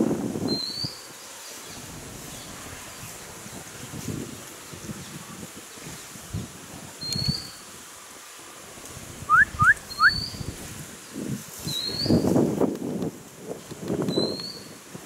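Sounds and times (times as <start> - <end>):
rustling of leaves and branches: 0.0 - 15.0
rising whistled bird notes: 0.5 - 3.1, 7.0 - 7.6, 9.3 - 10.5, 11.7 - 12.3, 14.1 - 14.7
short high bird chirp: 9.3 - 10.5, 11.7 - 12.2.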